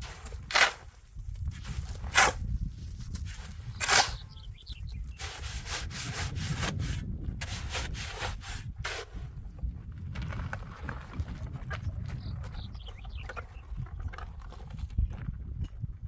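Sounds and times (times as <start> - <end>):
hand tool scraping: 0.0 - 9.3.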